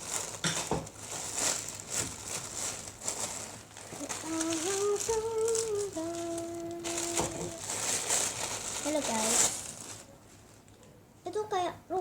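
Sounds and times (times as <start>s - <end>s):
plastic packaging crinkling: 0.0s - 10.8s
person humming: 4.0s - 7.7s.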